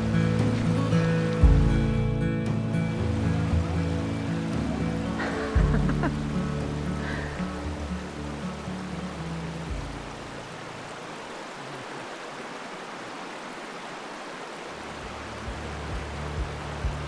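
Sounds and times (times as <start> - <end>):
background music: 0.0 - 10.4
water rushing over rocks: 0.0 - 17.0.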